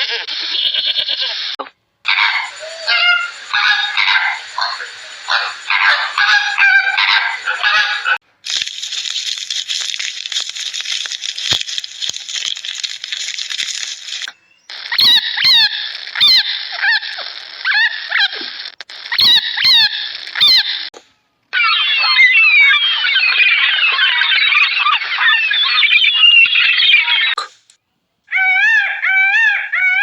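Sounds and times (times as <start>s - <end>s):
short squeaky falling calls: 0.0s - 20.9s, 21.5s - 27.7s
high chirping chorus: 2.1s - 8.2s, 8.8s - 18.1s, 18.9s - 20.9s, 21.6s - 27.5s.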